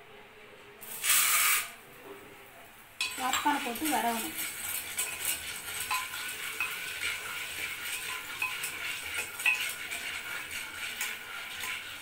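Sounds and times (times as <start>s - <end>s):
popcorn sizzling in hot oil: 0.8s - 2.0s, 2.8s - 12.0s
spatula scraping a pot: 3.2s - 12.0s.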